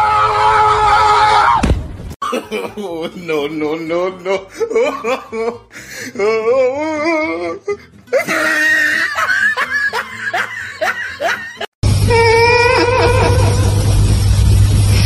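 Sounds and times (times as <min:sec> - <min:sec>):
person laughing: 0:02.2 - 0:14.1
music: 0:02.8 - 0:15.0.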